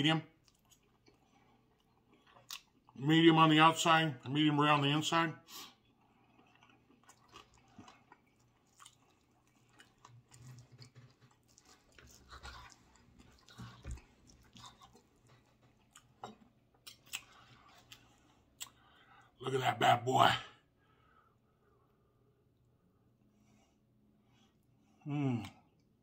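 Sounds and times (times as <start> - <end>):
person chewing: 0.4 - 3.0, 5.5 - 19.0.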